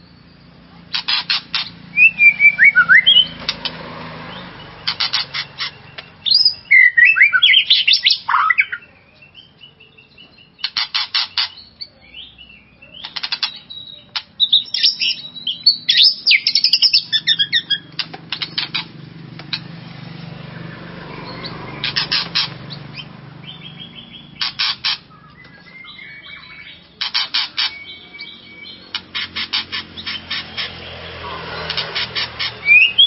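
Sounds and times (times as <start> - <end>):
sharp clicking bird notes: 0.9 - 9.4, 10.2 - 11.9, 12.9 - 19.9, 21.0 - 33.0
bird singing whistled phrases: 1.9 - 3.4, 5.8 - 10.7, 11.5 - 17.9, 25.1 - 26.8, 27.6 - 28.9, 32.6 - 33.0.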